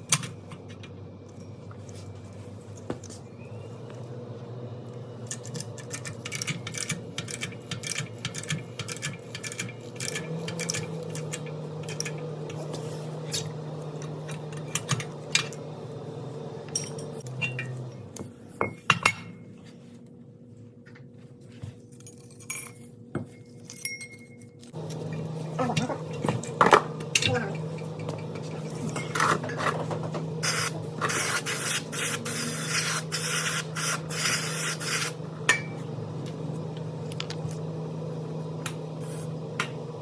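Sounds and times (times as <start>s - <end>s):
metal tools clinking: 16.7s - 17.8s, 22.0s - 24.6s.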